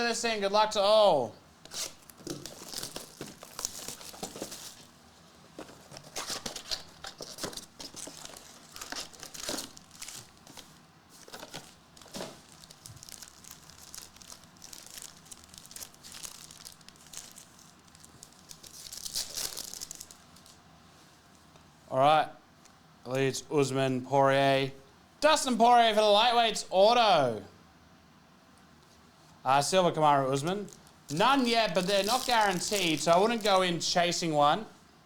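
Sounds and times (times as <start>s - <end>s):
plastic wrappers crinkling and tearing: 1.6s - 4.9s, 5.5s - 20.6s, 30.6s - 34.0s.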